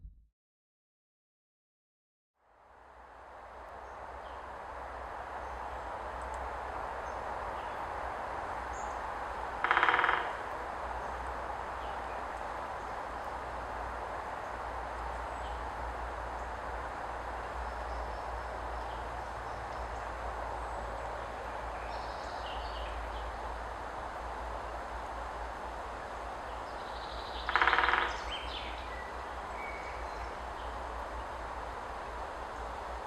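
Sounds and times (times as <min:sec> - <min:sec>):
low background noise: 0:02.4 - 0:33.0
faint bird calls: 0:09.6 - 0:10.6, 0:26.6 - 0:30.8
woodpecker drumming: 0:09.6 - 0:10.6, 0:27.4 - 0:28.4.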